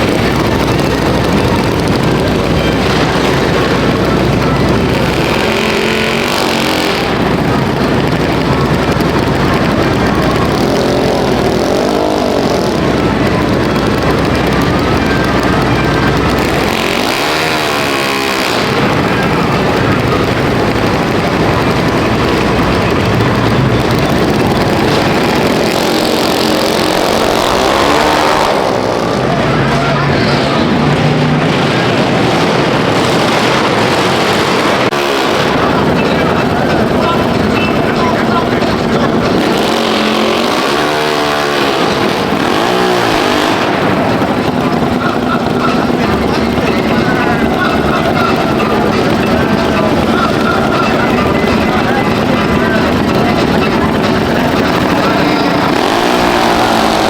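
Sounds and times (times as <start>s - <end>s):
engine running: 0.0s - 57.0s
loud wash of noise: 0.0s - 57.0s.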